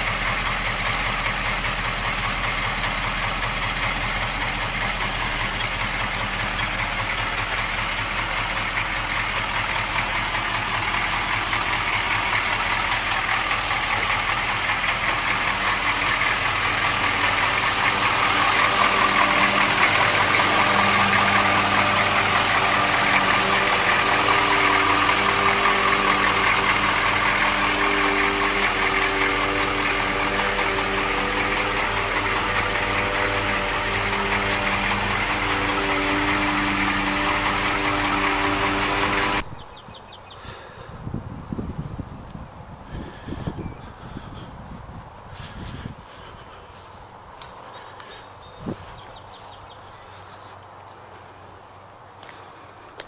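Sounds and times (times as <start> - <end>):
engine idling: 0.0 - 53.0.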